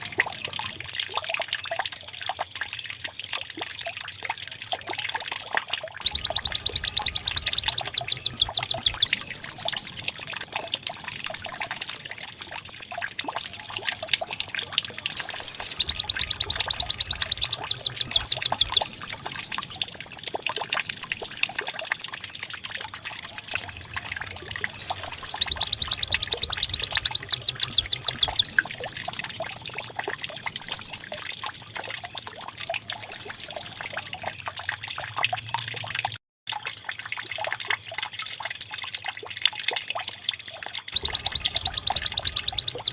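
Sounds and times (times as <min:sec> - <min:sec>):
bird song with rattling trills: 0:00.0 - 0:00.5, 0:06.1 - 0:34.1, 0:41.0 - 0:42.9
faint trickling: 0:05.9 - 0:31.0, 0:38.6 - 0:42.9.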